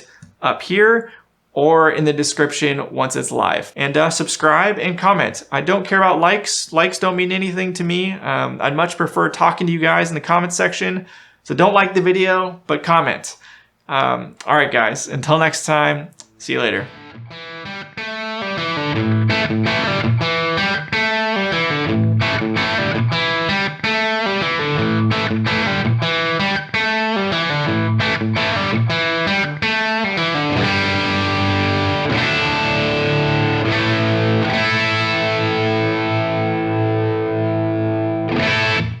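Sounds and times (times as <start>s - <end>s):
distorted electric guitar chords: 16.8s - 39.0s.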